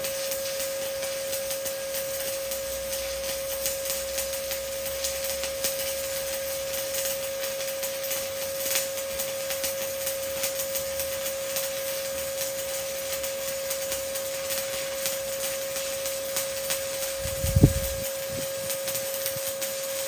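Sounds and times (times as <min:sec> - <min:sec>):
welding arc crackling: 0:00.0 - 0:20.0
high-pitched hum: 0:17.1 - 0:19.0.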